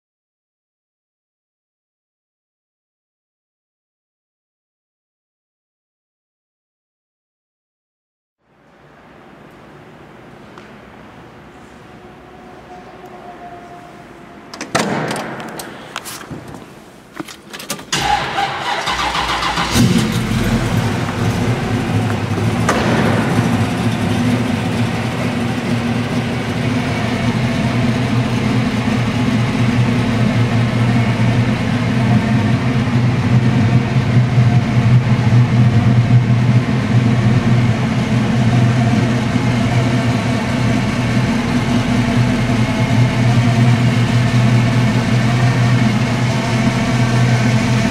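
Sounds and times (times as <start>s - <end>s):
car engine cranking and idling: 14.6s - 47.9s.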